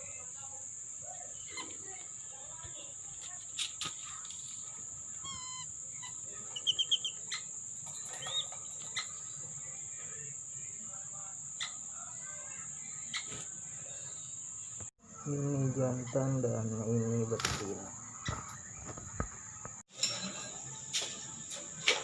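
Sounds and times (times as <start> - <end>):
crickets chirring: 0.0 - 22.0
ducks whistling calls: 5.2 - 9.3.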